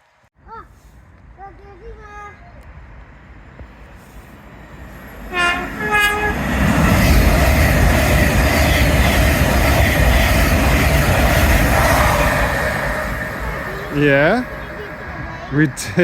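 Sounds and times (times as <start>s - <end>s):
train rumbling on rails: 0.8s - 16.0s
train horn two notes: 5.3s - 6.4s.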